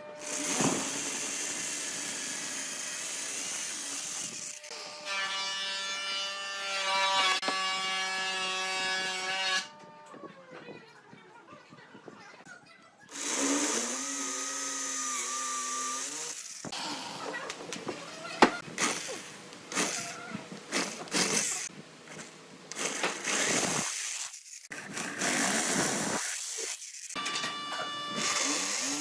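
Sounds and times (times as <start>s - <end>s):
power tool working wood: 0.0s - 9.7s, 13.1s - 17.2s, 24.8s - 29.0s.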